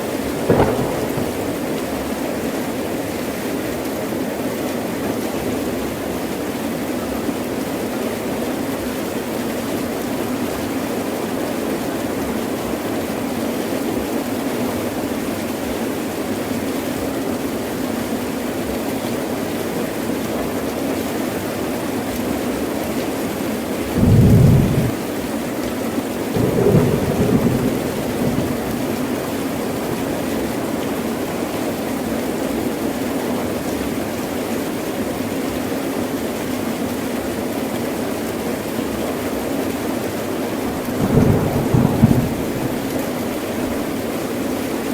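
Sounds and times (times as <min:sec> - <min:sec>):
heavy rain pouring: 0:00.0 - 0:44.9
rolling thunder rumble: 0:00.2 - 0:02.2, 0:24.0 - 0:25.2, 0:26.4 - 0:30.5, 0:40.8 - 0:43.8
thunder crack: 0:00.3 - 0:02.0, 0:24.0 - 0:25.0, 0:26.4 - 0:30.2, 0:41.0 - 0:43.5.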